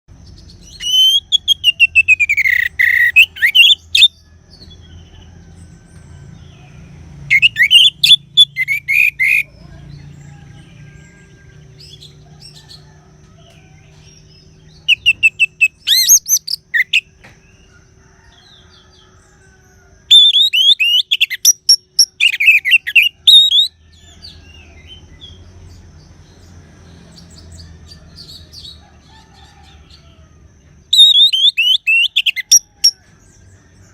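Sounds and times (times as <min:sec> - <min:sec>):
thrush singing whistled phrases: 0:00.8 - 0:04.2, 0:07.3 - 0:09.5, 0:14.9 - 0:17.1, 0:20.1 - 0:23.8, 0:30.9 - 0:33.0.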